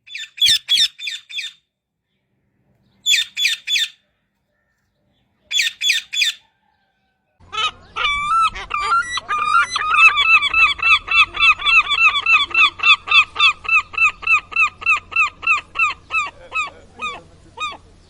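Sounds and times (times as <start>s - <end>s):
seagull long call: 5.5s - 18.0s.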